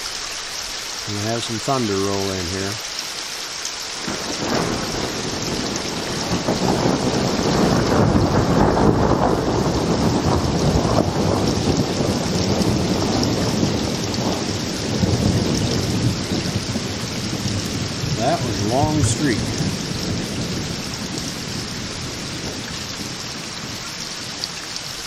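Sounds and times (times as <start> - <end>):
rain hissing: 0.0 - 25.0
thunder rolling: 4.0 - 23.8.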